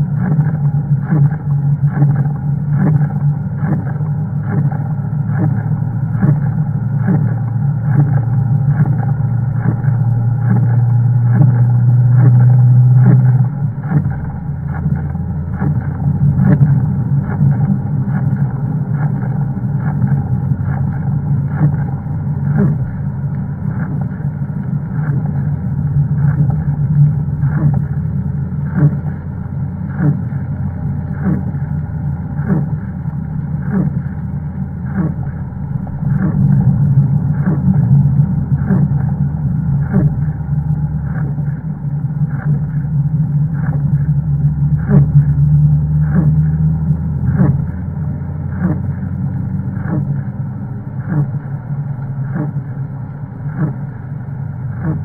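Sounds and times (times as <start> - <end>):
car engine pulling hard: 0.0 - 55.0.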